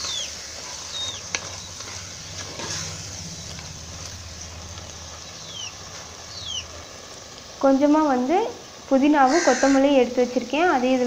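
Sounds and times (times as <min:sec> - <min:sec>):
food sizzling in a pot: 0:00.0 - 0:11.0
high falling chirp: 0:04.3 - 0:07.0.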